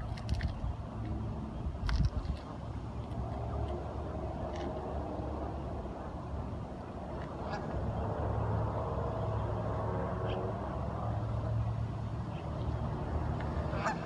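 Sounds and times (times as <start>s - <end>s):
duck calls: 13.7s - 14.0s.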